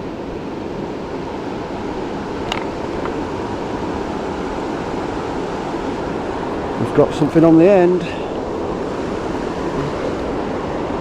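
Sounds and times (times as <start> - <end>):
flowing river water: 0.0 - 11.0.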